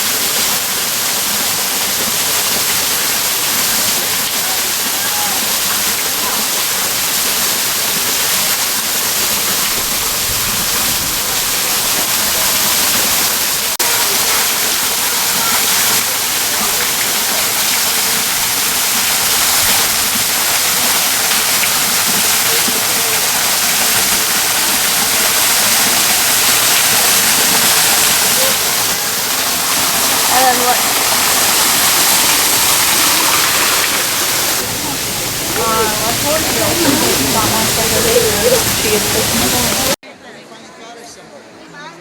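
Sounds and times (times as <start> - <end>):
falling water rushing: 0.0 - 40.0.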